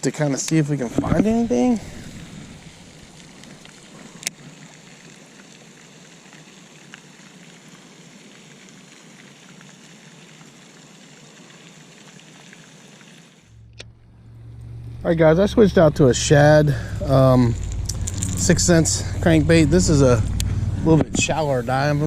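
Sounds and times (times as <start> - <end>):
rushing wind: 0.8 - 4.2, 15.9 - 22.0.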